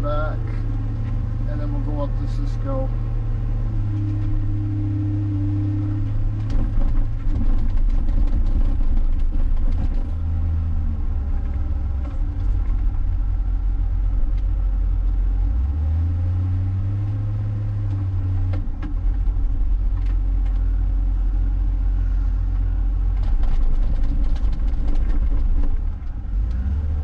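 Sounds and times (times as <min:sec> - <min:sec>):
wheel loader diesel engine: 0:00.0 - 0:27.0.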